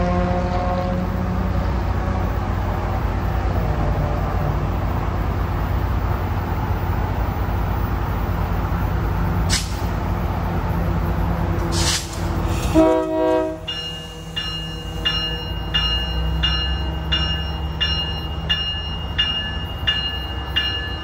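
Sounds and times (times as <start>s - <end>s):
diesel locomotive engine drone: 0.0s - 21.0s
train rumble: 0.0s - 21.0s
air hiss burst: 9.5s - 10.0s, 11.6s - 13.1s.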